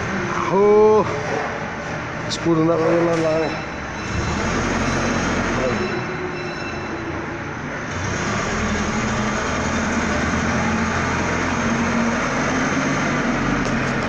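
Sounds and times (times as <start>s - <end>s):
vehicle engine running: 7.9s - 14.0s.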